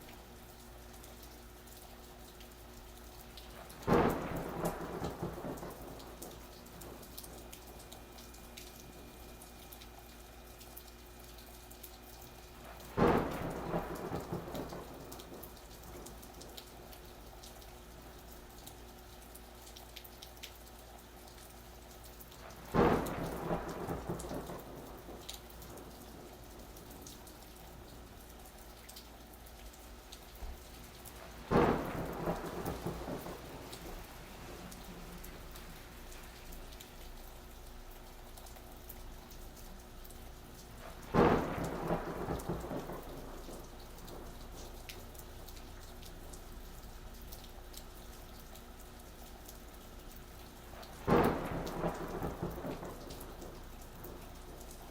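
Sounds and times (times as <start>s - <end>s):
rain falling: 0.0s - 54.9s
thunderclaps: 3.5s - 7.5s, 12.7s - 16.6s, 22.4s - 27.2s, 30.4s - 37.2s, 40.8s - 45.5s, 50.6s - 54.9s.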